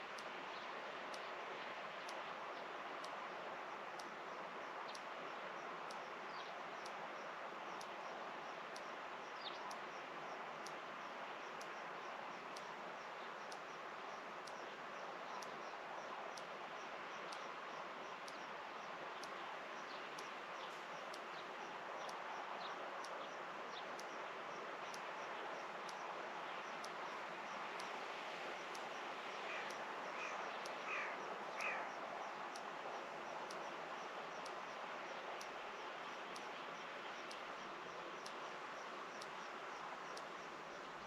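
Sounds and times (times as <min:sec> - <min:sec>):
steady hiss: 0:00.0 - 0:41.0
faint high ticking: 0:00.1 - 0:40.5
bird calling: 0:29.5 - 0:31.9.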